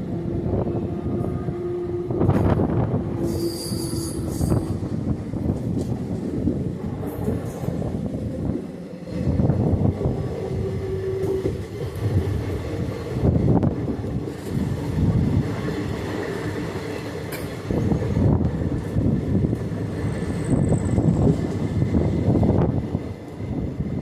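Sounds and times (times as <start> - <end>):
train wheels rumbling: 0.0 - 24.0
thin wheel squeal: 3.2 - 4.7.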